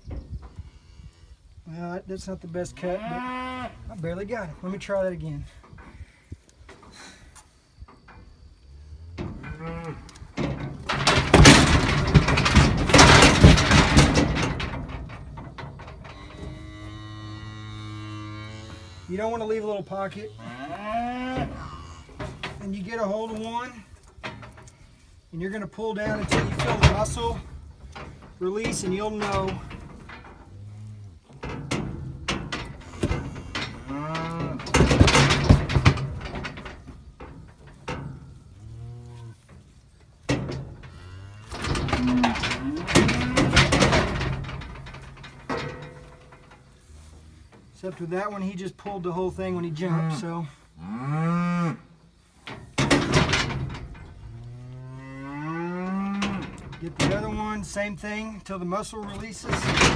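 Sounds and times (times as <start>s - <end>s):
clattering and knocking: 9.2s - 17.7s, 21.4s - 22.8s, 24.0s - 24.7s, 26.0s - 30.6s, 31.3s - 38.6s, 39.5s - 46.7s, 52.4s - 54.4s, 56.0s - 58.1s, 59.0s - 59.9s.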